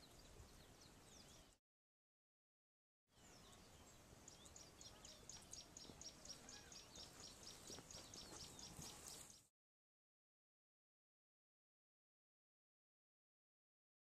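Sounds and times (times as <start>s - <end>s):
faint outdoor ambience: 0.0s - 1.6s, 3.1s - 9.5s.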